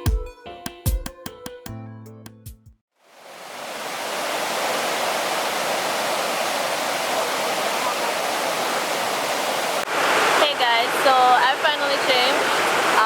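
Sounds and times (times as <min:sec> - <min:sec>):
waterfall rushing: 0:03.1 - 0:13.0.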